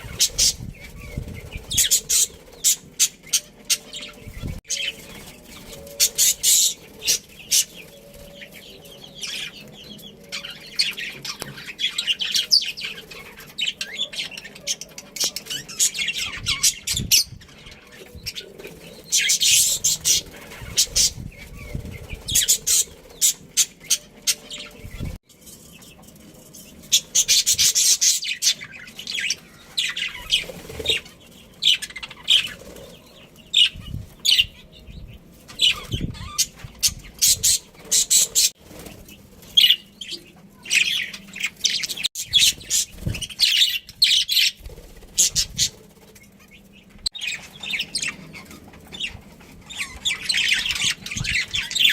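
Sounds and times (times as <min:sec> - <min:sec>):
budgerigars chirping and chattering: 0:00.0 - 0:51.9.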